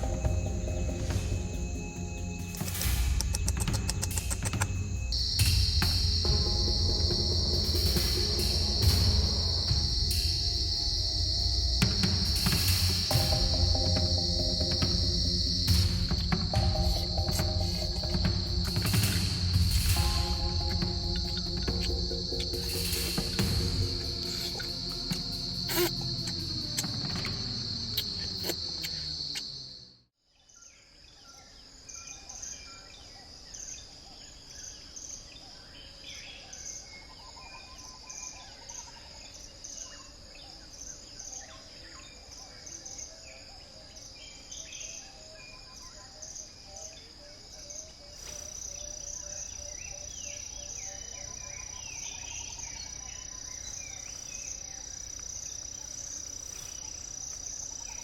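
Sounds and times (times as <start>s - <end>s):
background music: 0.0s - 27.8s
high-pitched insect drone: 0.0s - 30.0s, 34.6s - 58.0s
higher insect tone: 0.0s - 30.0s, 34.5s - 58.0s.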